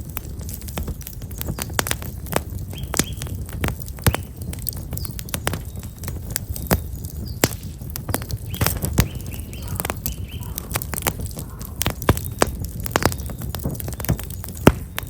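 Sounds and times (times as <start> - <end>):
wood fire crackling and popping: 0.0 - 15.0
small bird chirping: 2.7 - 3.4, 4.0 - 15.0.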